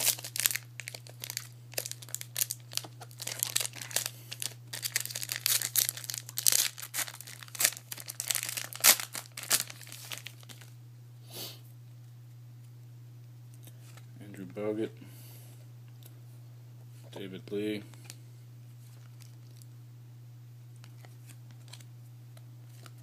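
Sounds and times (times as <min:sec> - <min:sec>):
wrapper tearing and crinkling: 0:00.0 - 0:10.7.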